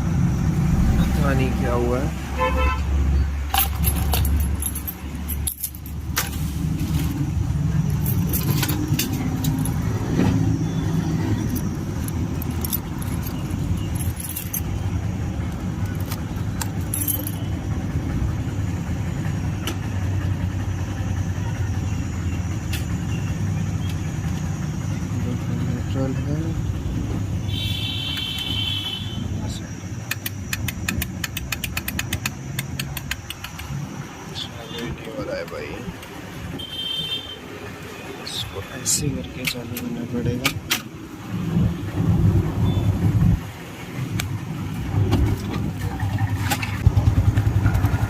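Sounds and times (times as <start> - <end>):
vehicle engine running: 0.0 - 2.3, 2.9 - 27.5, 42.0 - 48.0
metallic clicks and jingles: 3.5 - 6.3, 7.8 - 10.0, 11.3 - 14.9, 15.5 - 17.6.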